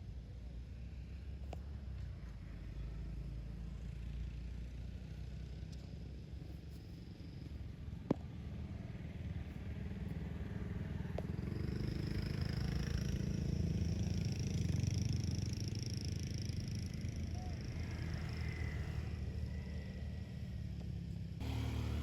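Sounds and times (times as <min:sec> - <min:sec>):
motor engine rumbling: 0:21.4 - 0:22.0.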